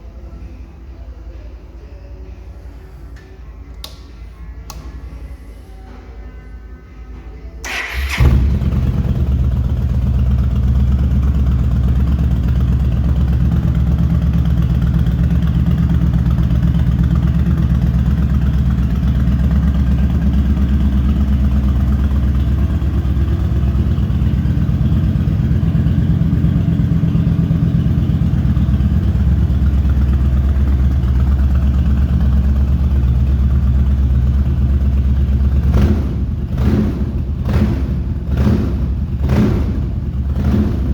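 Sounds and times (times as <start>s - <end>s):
electric starter cranking: 7.6s - 8.7s
motorcycle engine idling: 7.6s - 40.9s.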